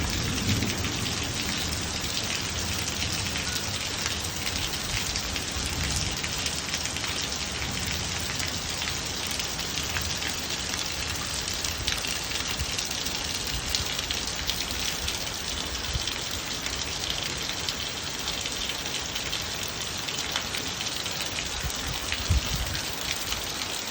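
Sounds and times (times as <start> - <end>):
rain drops ticking on surface: 0.0 - 23.9.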